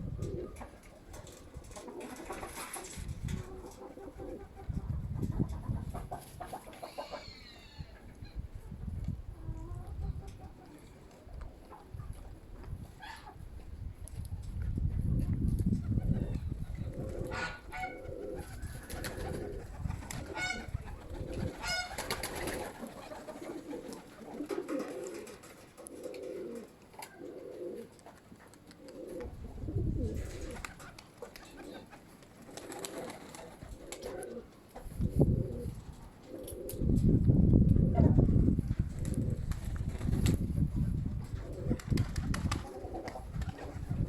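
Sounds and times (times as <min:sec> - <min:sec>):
wind rumble on microphone: 0:00.0 - 0:06.6, 0:07.8 - 0:10.6, 0:11.3 - 0:22.4, 0:29.2 - 0:30.7, 0:34.8 - 0:44.0
pigeons cooing: 0:00.0 - 0:12.4, 0:15.9 - 0:36.9, 0:40.8 - 0:44.0.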